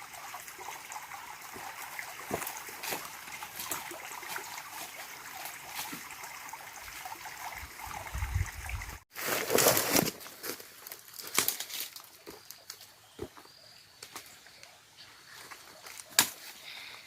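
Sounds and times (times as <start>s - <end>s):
water trickling and gurgling: 0.0s - 9.1s.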